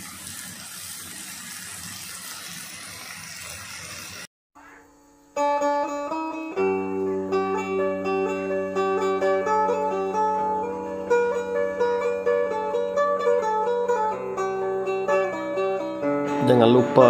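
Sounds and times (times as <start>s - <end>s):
vegetables sizzling in a wok: 0.0s - 5.4s
plucked-string intro music: 4.6s - 17.0s.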